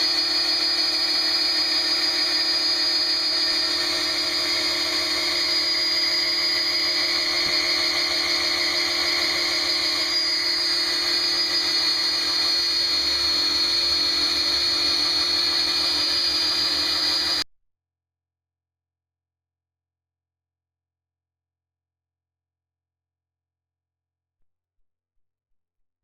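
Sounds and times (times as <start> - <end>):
electric drill running: 0.0 - 17.4.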